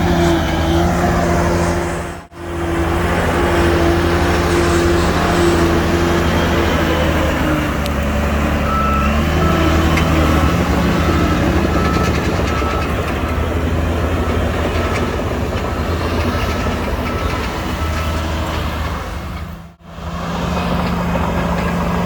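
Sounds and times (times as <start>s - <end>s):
heavy diesel machinery running: 0.0s - 22.0s
reversing alarm beeping: 8.6s - 18.7s.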